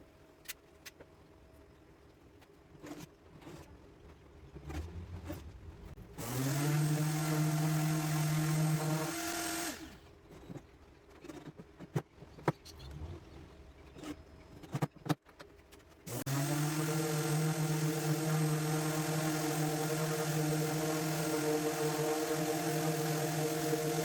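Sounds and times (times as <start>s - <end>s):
orbital sander running: 6.2s - 9.9s, 16.1s - 24.0s.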